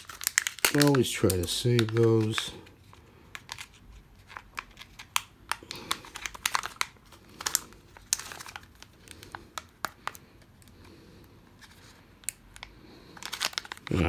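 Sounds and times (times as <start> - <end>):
wrapper and plastic capsule crinkling: 0.0 - 14.0.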